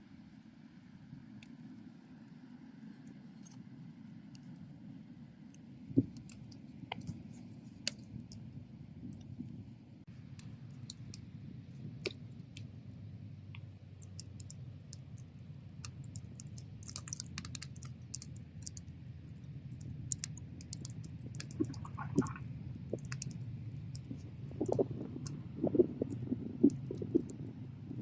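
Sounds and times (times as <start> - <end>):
low rumble of flames: 3.6 - 28.0
fire crackling and popping: 13.5 - 28.0.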